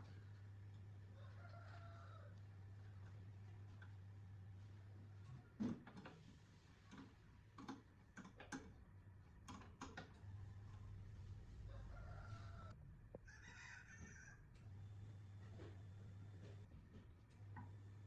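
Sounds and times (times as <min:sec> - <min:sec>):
rooster crowing faintly: 0:01.1 - 0:02.5, 0:10.4 - 0:14.6
low steady hum: 0:10.1 - 0:13.4.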